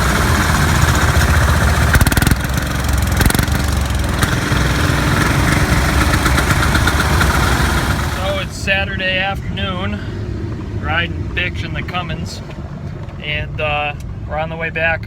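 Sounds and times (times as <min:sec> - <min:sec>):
small tractor engine running: 0:00.0 - 0:08.6.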